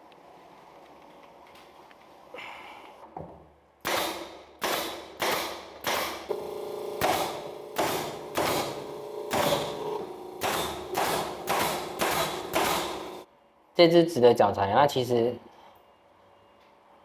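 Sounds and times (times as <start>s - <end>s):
nail gun firing into plywood: 3.8s - 13.3s
steady hum: 6.3s - 13.3s.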